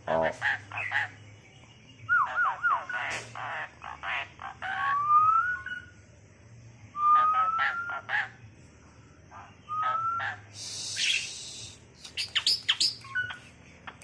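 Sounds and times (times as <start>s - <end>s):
bird long rising whistles: 9.7s - 11.8s
bird harsh chattering notes: 9.8s - 14.0s.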